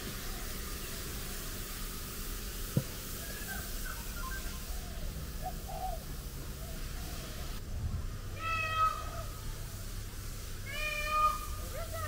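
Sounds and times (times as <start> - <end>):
low background hum: 0.0 - 12.0
bird calling: 3.1 - 7.6.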